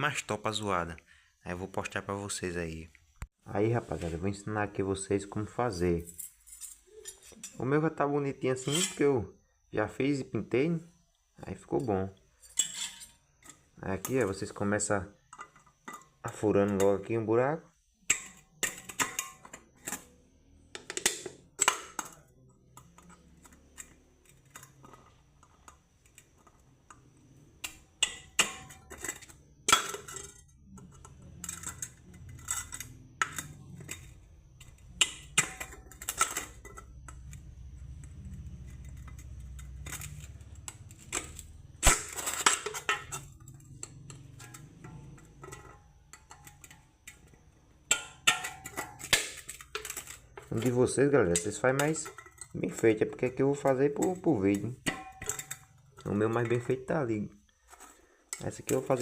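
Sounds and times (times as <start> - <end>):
metal tool clicking on can: 47.9 - 53.2.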